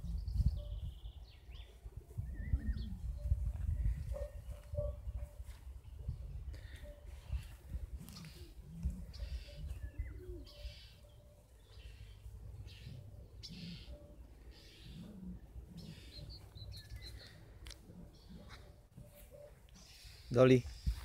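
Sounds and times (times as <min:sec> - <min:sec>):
wind rumble on microphone: 0:00.0 - 0:10.6, 0:20.6 - 0:21.0
birds singing: 0:00.0 - 0:21.0.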